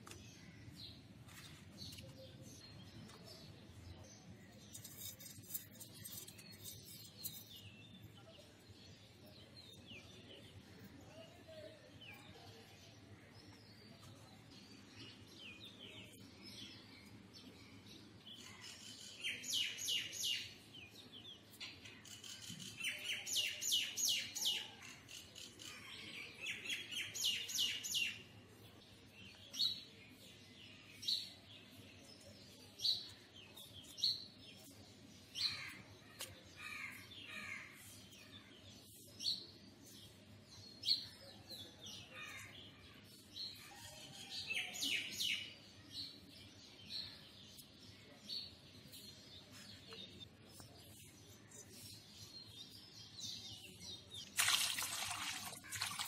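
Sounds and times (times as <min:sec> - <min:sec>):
birds chirping: 0:44.2 - 0:56.0.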